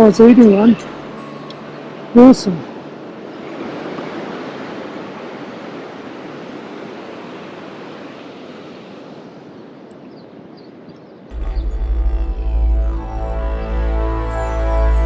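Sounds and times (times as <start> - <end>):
waves washing on shore: 0.4 - 9.9.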